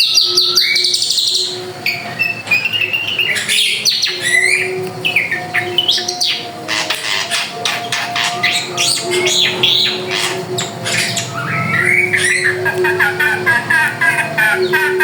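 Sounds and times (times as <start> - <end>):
bird singing chattering notes: 0.0 - 15.0.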